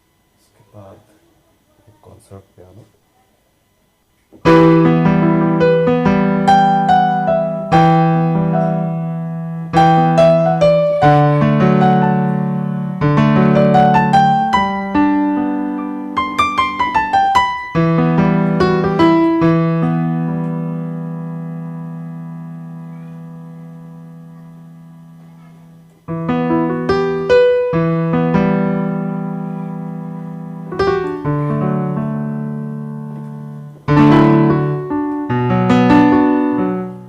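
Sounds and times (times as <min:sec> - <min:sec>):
piano chords and melody: 0:04.4 - 0:37.0.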